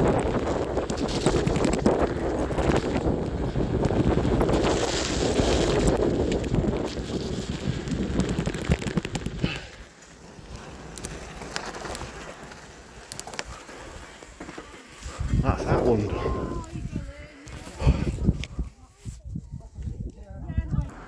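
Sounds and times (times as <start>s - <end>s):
wind buffeting microphone: 0.0s - 9.8s, 15.0s - 21.0s
clicks and knocks from bike ride: 0.0s - 14.7s.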